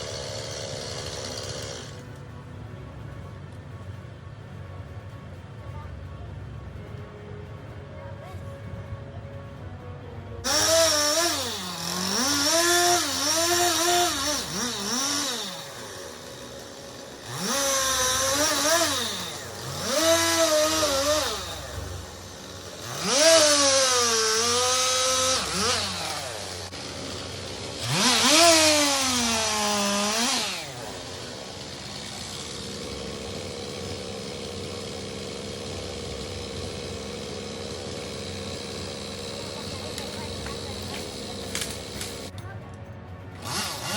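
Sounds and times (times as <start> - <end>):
chainsaw revving cutting wood: 0.0 - 2.1, 10.4 - 42.3, 43.4 - 43.9.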